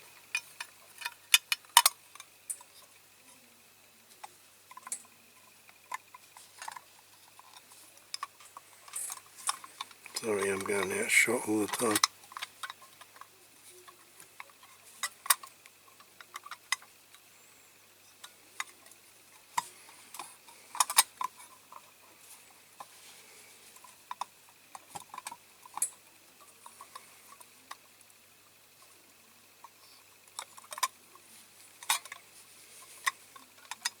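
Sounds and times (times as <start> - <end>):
toy parts clicking together: 0.3 - 2.7, 4.7 - 13.3, 13.9 - 17.2, 19.5 - 21.9, 30.4 - 31.0, 31.8 - 32.2, 33.0 - 34.0.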